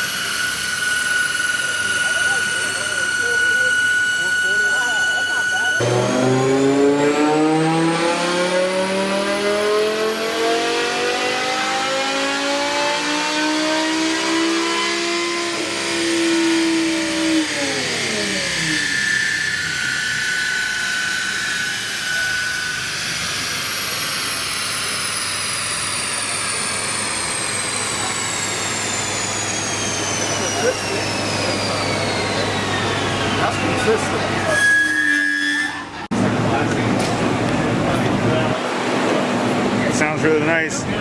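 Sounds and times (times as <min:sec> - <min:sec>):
high whine falling in pitch: 0:00.0 - 0:41.0
car engine revving at full throttle: 0:05.8 - 0:19.3, 0:21.1 - 0:34.4.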